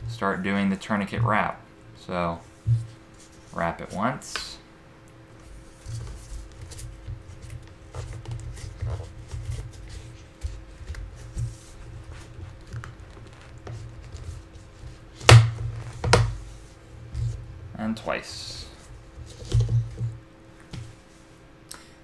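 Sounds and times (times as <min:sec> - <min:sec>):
cord rubbing and creaking: 0:05.8 - 0:15.0.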